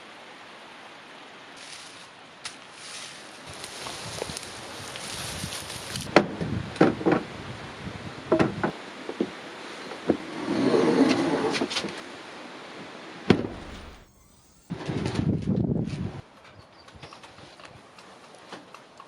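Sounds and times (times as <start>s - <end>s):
sharp knocks and clunks: 13.3s - 14.1s
rough scraping: 13.4s - 14.7s.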